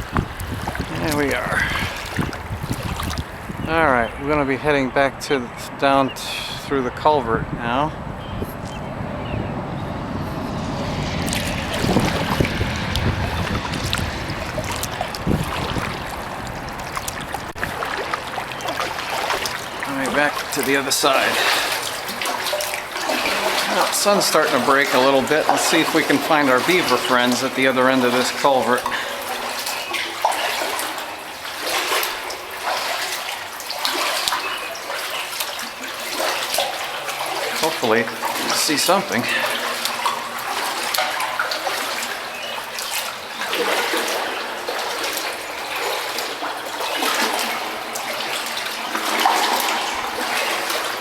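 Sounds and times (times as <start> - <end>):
paddle splashing in water: 0.0 - 3.7, 8.2 - 51.0
wind buffeting microphone: 0.0 - 29.9.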